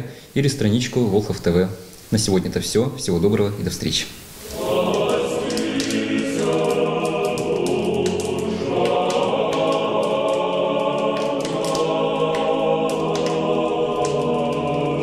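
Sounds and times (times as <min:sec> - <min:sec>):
choir singing long chords: 0:04.4 - 0:15.0.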